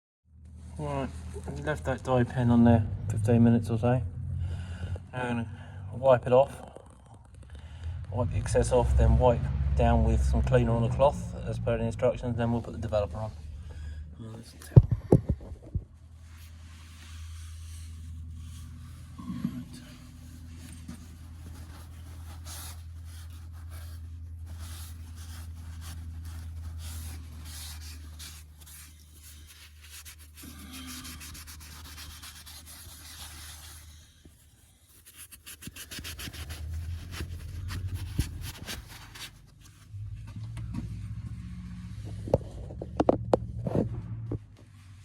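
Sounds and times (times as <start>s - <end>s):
low steady hum: 0.4s - 45.0s
cloth rubbing on metal: 14.3s - 44.2s.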